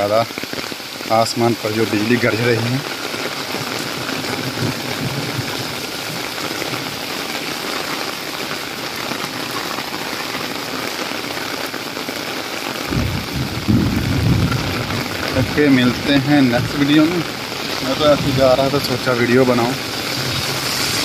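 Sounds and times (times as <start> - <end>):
heavy rain on a street: 0.0 - 21.0
low rumble: 12.9 - 21.0.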